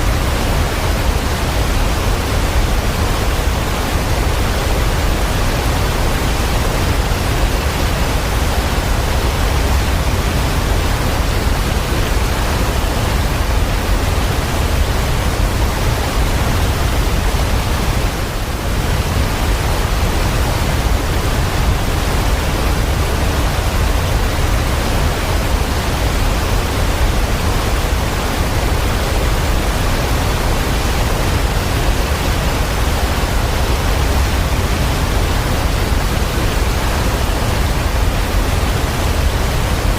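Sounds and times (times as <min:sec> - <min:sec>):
rushing water with low rumble: 0:00.0 - 0:39.9.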